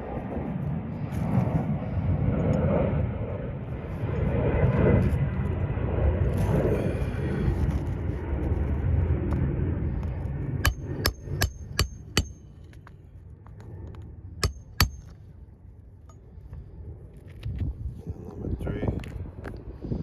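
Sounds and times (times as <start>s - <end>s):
hammer striking nail: 10.6s - 12.5s, 14.4s - 15.2s.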